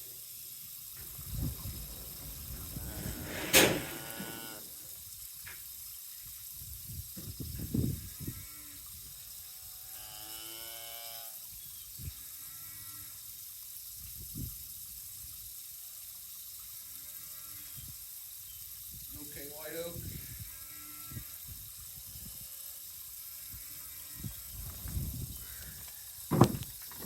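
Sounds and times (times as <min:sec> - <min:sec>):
cow mooing: 0:02.7 - 0:04.7
dull thuds: 0:26.3 - 0:27.0.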